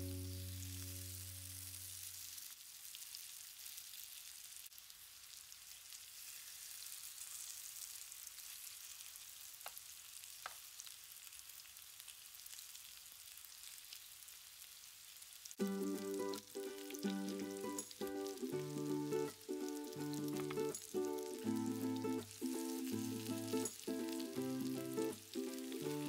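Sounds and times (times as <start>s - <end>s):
background music: 0.0s - 1.1s, 15.6s - 26.0s
oil sizzling and crackling: 0.0s - 26.0s.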